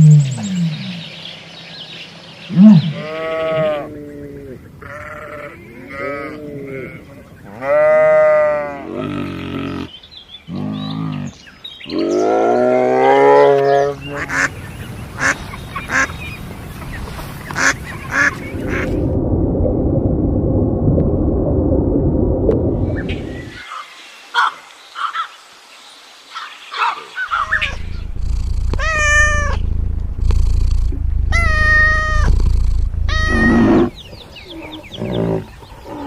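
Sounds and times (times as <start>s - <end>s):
animal cries: 2.6s - 7.0s, 28.8s - 29.6s, 31.3s - 32.3s, 33.1s - 34.0s
steady rushing noise: 14.5s - 23.6s, 27.4s - 34.4s
sharp clicks: 27.7s - 33.6s.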